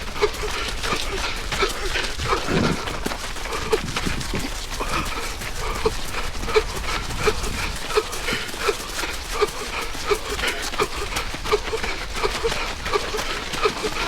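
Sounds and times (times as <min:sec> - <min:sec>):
runner wheezing breath: 0:00.0 - 0:14.0
running footfalls: 0:00.0 - 0:14.0.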